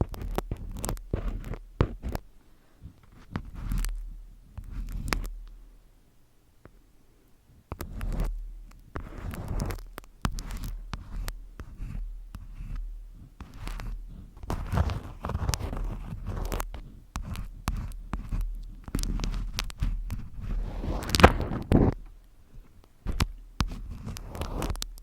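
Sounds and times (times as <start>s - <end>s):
crackly scraping: 0.0s - 5.7s, 7.7s - 25.0s
sharp taps and clicks: 7.7s - 12.8s, 13.4s - 25.0s.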